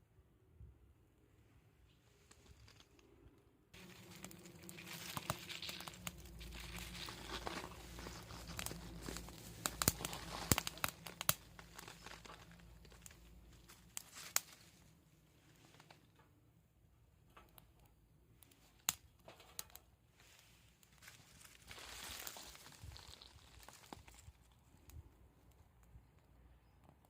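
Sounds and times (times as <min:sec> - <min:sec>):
twigs crackling in fire: 0:03.8 - 0:16.3, 0:17.3 - 0:26.3.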